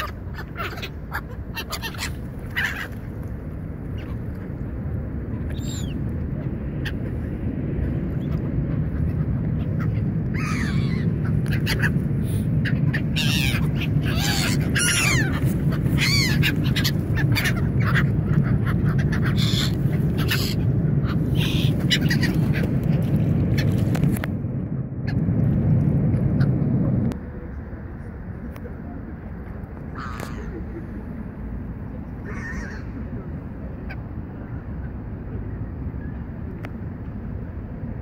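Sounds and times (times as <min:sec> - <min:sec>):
gulls calling: 0:00.0 - 0:24.2, 0:29.8 - 0:35.0
low rumble: 0:02.3 - 0:32.3.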